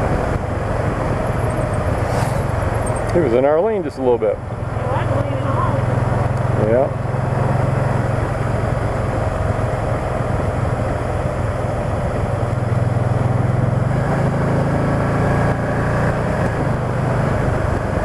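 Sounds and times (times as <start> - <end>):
motorcycle engine hum: 0.0 - 18.0
wind and road noise: 0.0 - 18.0.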